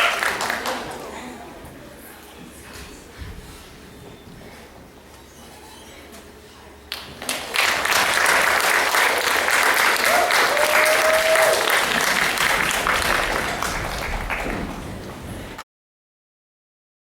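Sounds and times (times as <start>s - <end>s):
audience applauding: 0.0s - 1.2s, 6.9s - 15.6s
person cheering: 10.0s - 11.9s.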